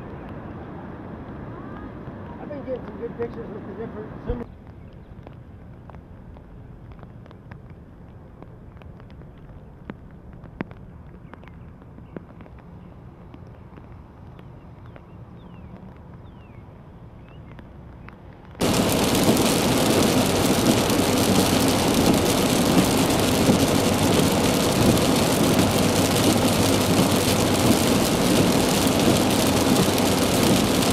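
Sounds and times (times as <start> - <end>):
faint outdoor background: 0.0 - 19.4
rain beating on car: 18.5 - 30.9
tyres hissing on wet road: 18.6 - 30.9.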